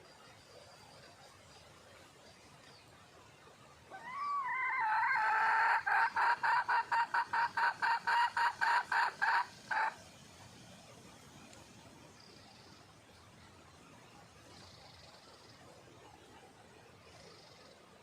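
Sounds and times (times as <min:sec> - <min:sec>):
hen clucking rapidly: 0:04.2 - 0:10.0.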